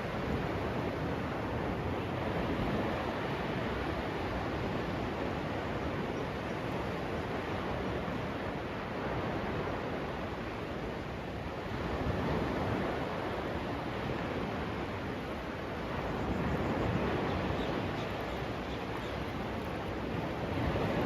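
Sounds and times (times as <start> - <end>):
surf washing onto beach: 0.0 - 6.1, 7.0 - 21.0
wind on microphone: 0.0 - 10.2, 11.4 - 21.0.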